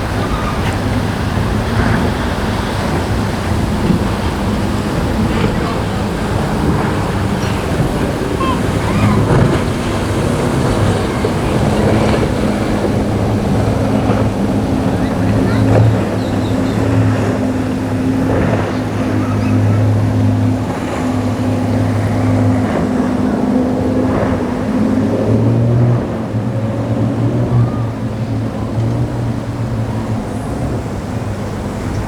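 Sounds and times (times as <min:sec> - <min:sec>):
motorboat engines droning: 0:00.0 - 0:32.0
wind: 0:00.0 - 0:32.0.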